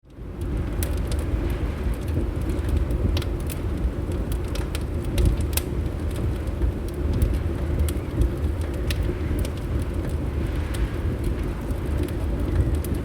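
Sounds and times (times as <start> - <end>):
fireplace crackling and popping: 0.1 - 13.0
steady low rumble: 0.1 - 13.0.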